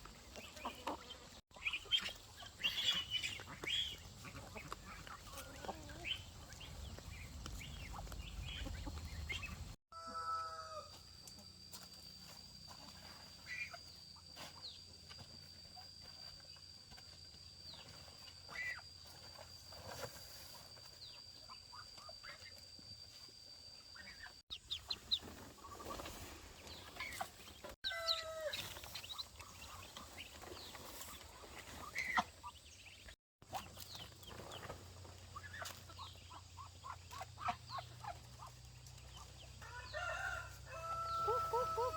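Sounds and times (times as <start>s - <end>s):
chickens clucking: 0.0s - 10.3s, 24.0s - 40.1s, 40.8s - 41.9s.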